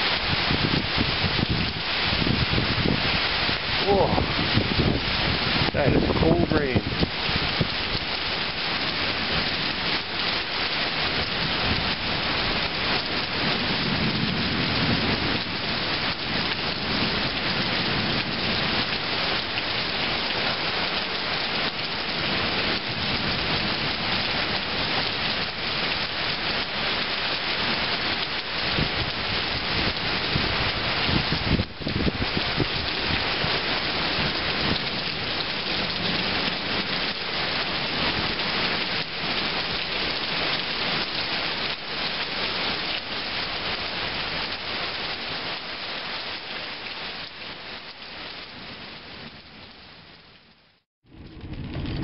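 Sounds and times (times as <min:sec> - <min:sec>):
heavy rain pouring: 0:00.0 - 0:52.0
low rumble of thunder: 0:00.1 - 0:08.1, 0:11.1 - 0:20.2, 0:28.6 - 0:40.5, 0:51.1 - 0:52.0.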